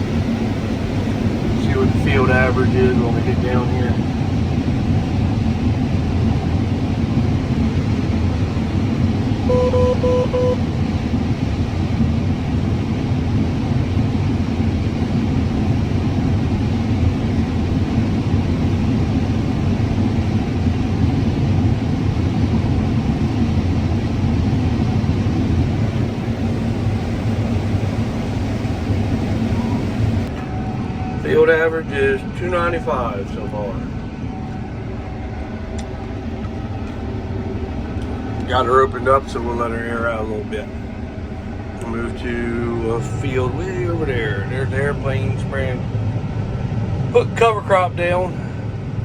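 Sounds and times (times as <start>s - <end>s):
combine harvester droning: 0.0s - 49.0s
short electronic beeps: 9.4s - 10.7s.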